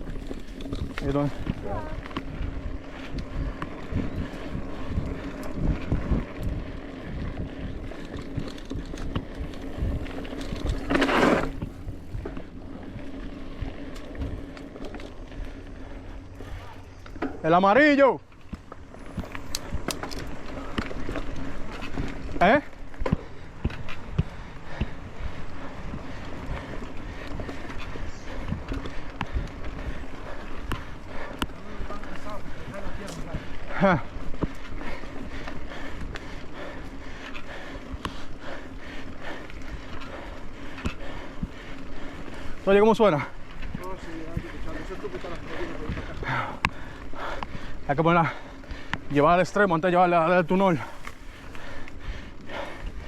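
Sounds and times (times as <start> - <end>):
wind on microphone: 0.0 - 14.5
wind buffeting microphone: 0.0 - 49.8
mountain bike riding on trail: 0.0 - 53.0.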